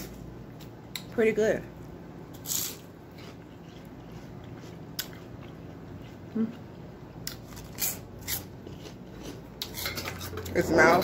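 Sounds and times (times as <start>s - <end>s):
chewing with small crunches: 2.4s - 10.6s.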